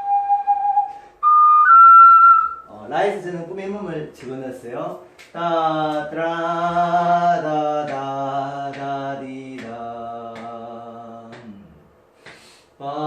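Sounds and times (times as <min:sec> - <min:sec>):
man singing sustained notes: 0:05.4 - 0:11.8.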